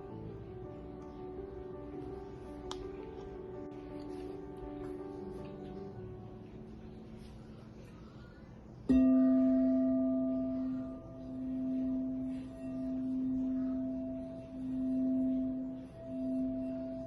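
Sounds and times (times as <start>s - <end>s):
singing bowl ringing: 8.9s - 17.0s.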